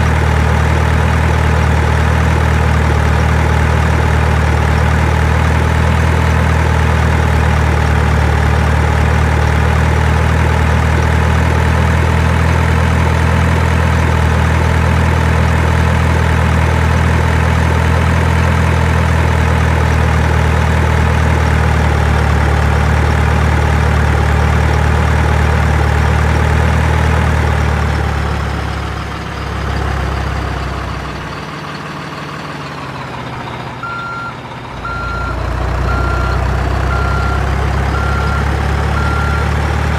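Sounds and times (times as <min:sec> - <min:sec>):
truck engine idling: 0:00.0 - 0:39.9.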